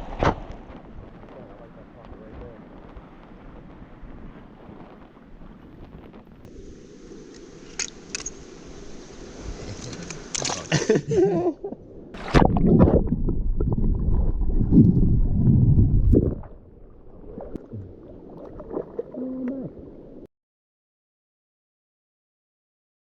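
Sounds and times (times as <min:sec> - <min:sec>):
water sloshing and gurgling: 0:11.6 - 0:20.3.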